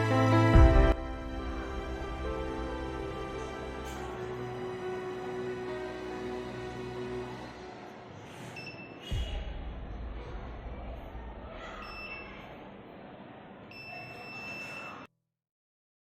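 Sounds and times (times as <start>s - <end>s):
low rumble: 9.1s - 12.0s.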